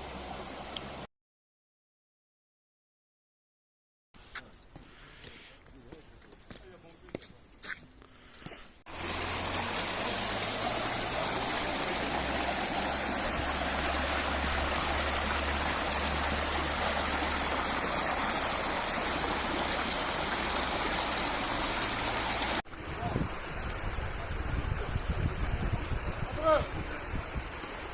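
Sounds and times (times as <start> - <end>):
mountain stream rushing: 0.0 - 1.1, 8.9 - 27.9.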